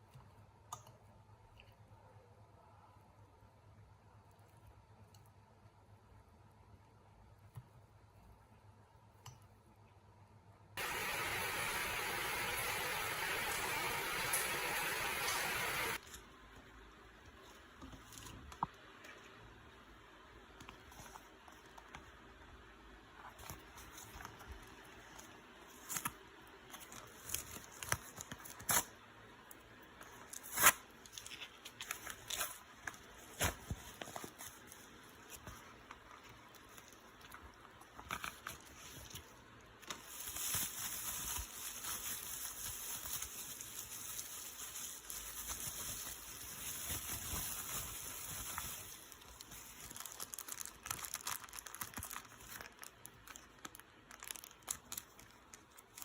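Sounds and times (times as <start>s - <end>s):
steady hiss: 10.8s - 16.0s
crinkling: 23.1s - 56.0s.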